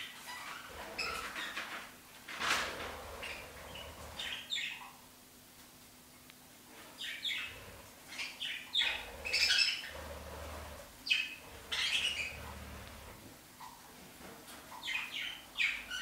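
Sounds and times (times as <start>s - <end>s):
small bird chirping: 3.0s - 5.0s, 7.0s - 10.2s, 11.0s - 13.8s, 14.7s - 16.0s.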